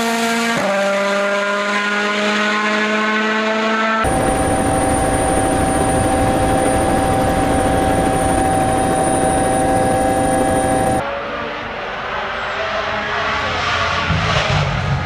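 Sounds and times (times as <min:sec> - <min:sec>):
loud mechanical drone: 0:04.0 - 0:11.0
thin high whine: 0:04.1 - 0:11.0.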